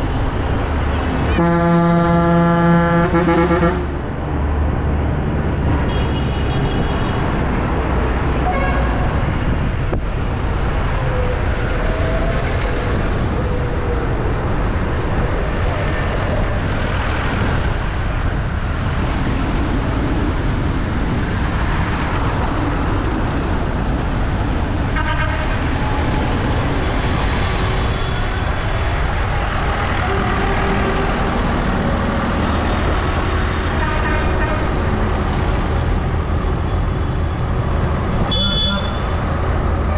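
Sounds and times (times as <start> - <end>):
horn toots: 1.2 - 4.0, 38.2 - 39.2
tractor engines running: 25.6 - 39.9.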